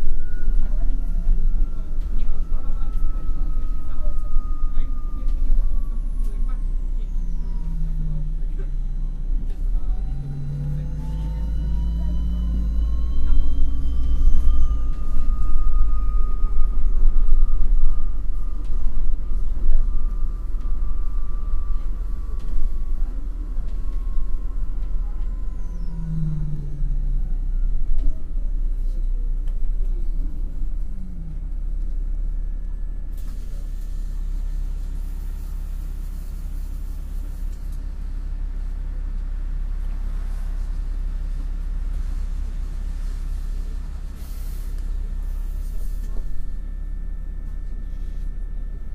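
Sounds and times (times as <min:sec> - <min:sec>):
bus engine rumble: 0:00.0 - 0:48.9
drivetrain whine: 0:00.0 - 0:48.9.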